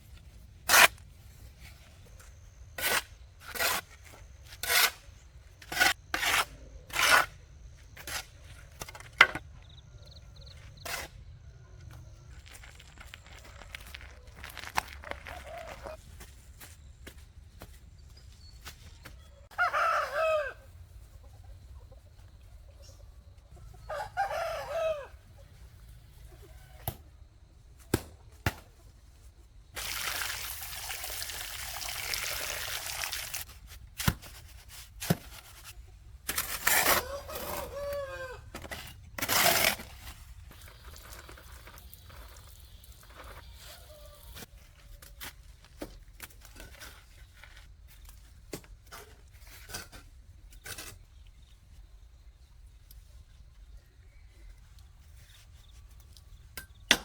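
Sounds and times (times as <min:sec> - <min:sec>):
rooster crowing: 0:19.5 - 0:20.6, 0:23.8 - 0:25.2, 0:37.0 - 0:38.5.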